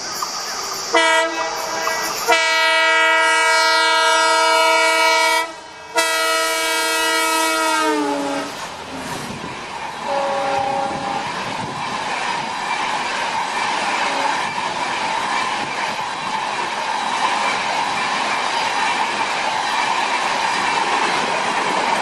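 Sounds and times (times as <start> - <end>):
train wheels clattering on rails: 0.0 - 22.0
two-note horn: 2.3 - 8.6, 10.0 - 11.2.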